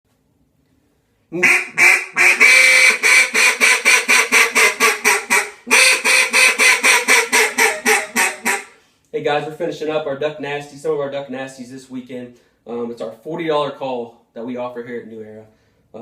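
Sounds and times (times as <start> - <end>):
duck call quacking: 1.3 - 8.8.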